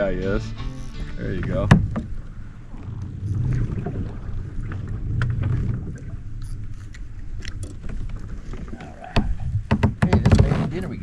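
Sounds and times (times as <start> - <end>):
water rumbling: 0.0 - 11.0
light clicks and knocks: 9.6 - 10.8.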